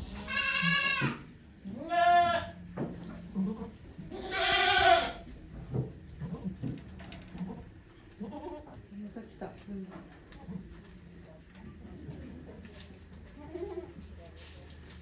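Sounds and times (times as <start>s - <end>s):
goat bleating: 0.0s - 2.6s, 3.4s - 5.3s, 7.4s - 8.8s, 13.3s - 14.0s.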